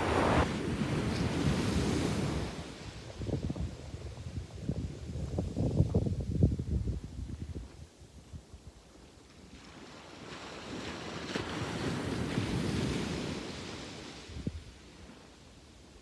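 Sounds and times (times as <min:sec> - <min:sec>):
wind thumps on microphone: 0:00.0 - 0:00.6
sea wave breaking: 0:00.0 - 0:00.7.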